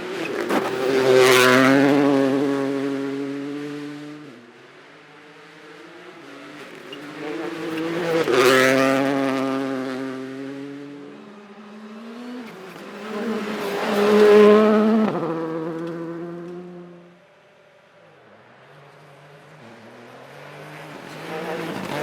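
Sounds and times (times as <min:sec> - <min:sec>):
rally car engine driving past: 0:05.3 - 0:17.1.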